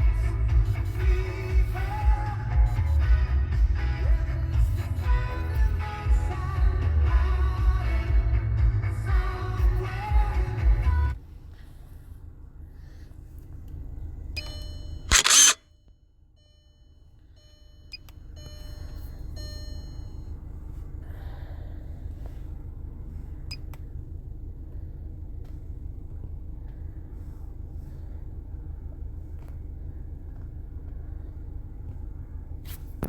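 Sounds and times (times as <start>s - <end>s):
short electronic beeps: 14.4s - 15.8s, 16.4s - 20.3s.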